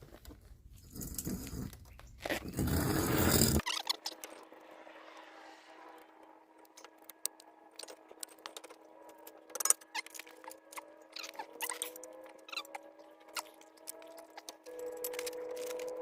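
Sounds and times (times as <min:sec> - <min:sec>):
metallic clicks and clinks of tools: 0:13.4 - 0:16.0.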